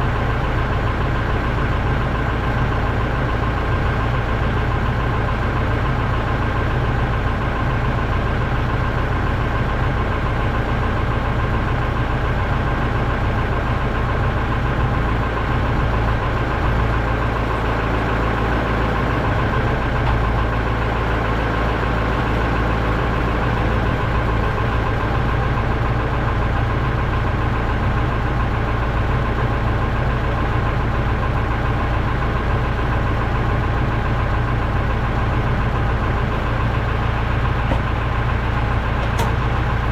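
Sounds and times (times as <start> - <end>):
engine running at steady revs: 0.0 - 39.9.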